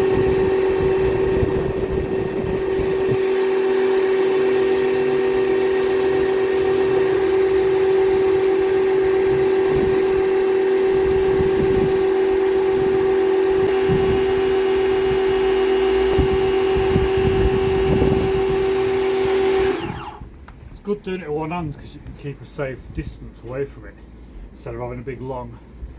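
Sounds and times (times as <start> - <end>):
low rumbling: 0.0 - 3.3, 6.7 - 19.0
pressure washer motor humming: 0.0 - 20.2.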